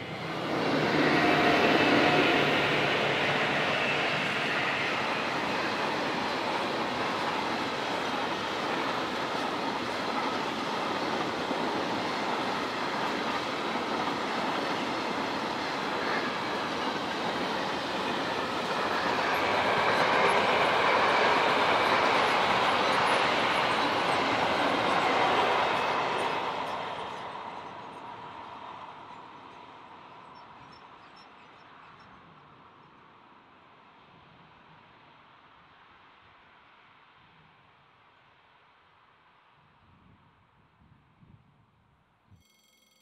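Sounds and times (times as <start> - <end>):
freight train rolling past: 0.0 - 32.0.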